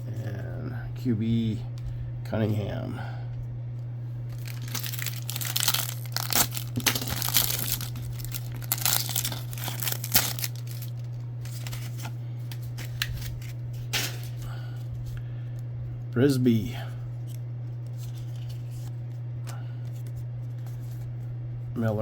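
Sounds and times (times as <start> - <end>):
steady low hum: 0.0 - 22.0
wrapper tearing and crinkling: 4.3 - 13.6.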